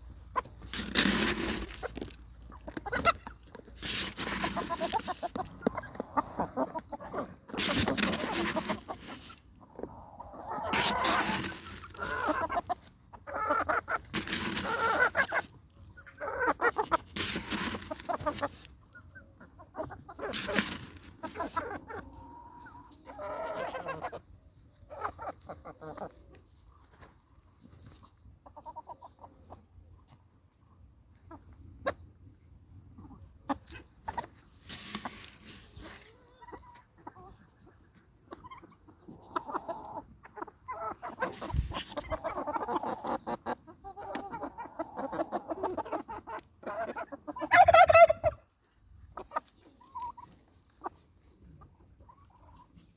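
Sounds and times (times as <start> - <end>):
chickens clucking: 0.0 - 52.9
loud chicken squawks: 40.7 - 48.4.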